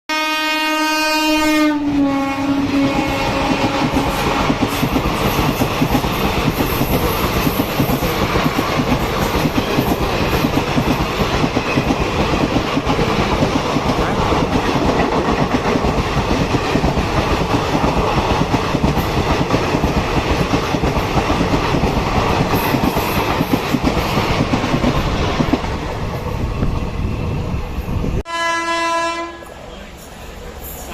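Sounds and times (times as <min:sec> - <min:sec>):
train horn: 0:00.1 - 0:04.4, 0:28.2 - 0:29.5
train wheels clattering on rails: 0:02.7 - 0:26.9.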